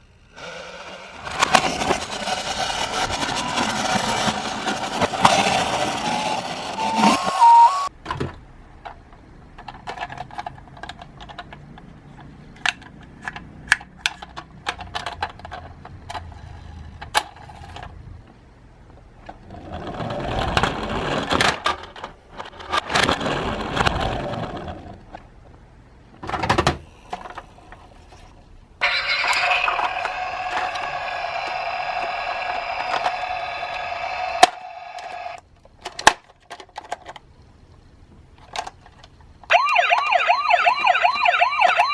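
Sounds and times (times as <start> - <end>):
toy cars rolling and clattering: 0.1 - 7.9, 8.8 - 25.6, 26.2 - 41.9
buzzing electronic tone: 6.7 - 7.9.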